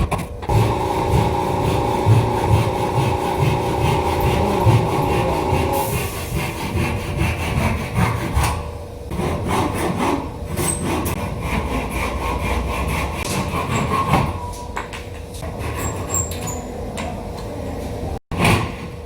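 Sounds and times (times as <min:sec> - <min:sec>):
handsaw cutting wood: 0:00.5 - 0:14.4.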